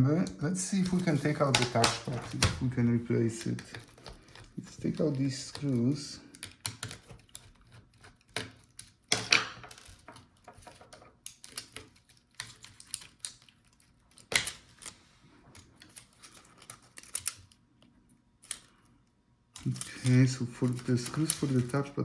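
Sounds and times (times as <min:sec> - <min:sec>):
screwdriver clicking on plastic: 0:05.5 - 0:13.5.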